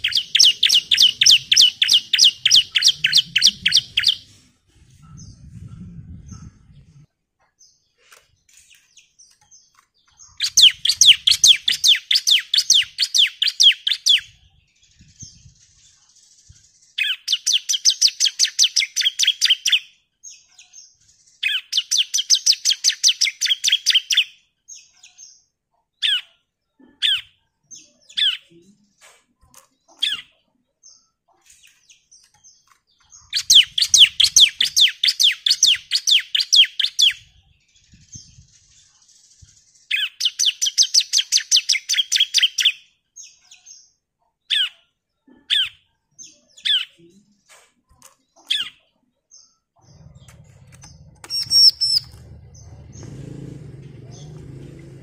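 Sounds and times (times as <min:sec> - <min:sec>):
bird high chipping song: 0:00.0 - 0:55.0
short down-slurred bird calls: 0:49.9 - 0:55.0.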